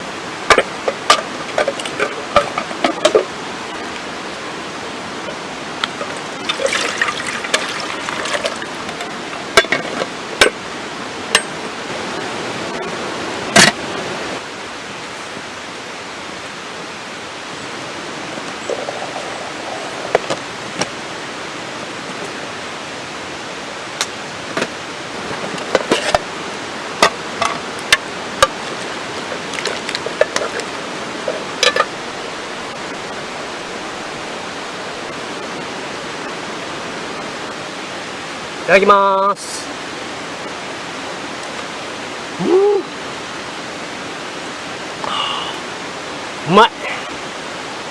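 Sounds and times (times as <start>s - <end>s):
wood fire crackling: 23.9s - 31.9s.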